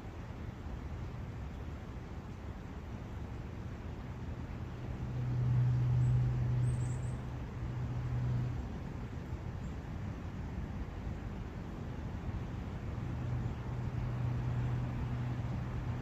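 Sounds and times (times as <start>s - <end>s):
distant vehicle humming: 4.6s - 9.5s, 10.4s - 16.0s.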